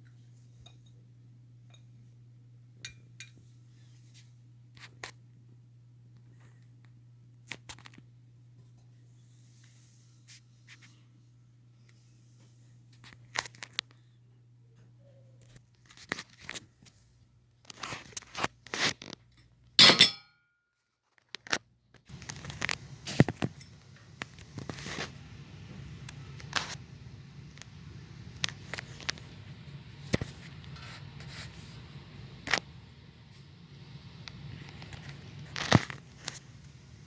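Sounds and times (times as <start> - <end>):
background hum: 0.0 - 20.4, 21.6 - 37.0
hands handling hardware: 19.8 - 20.3.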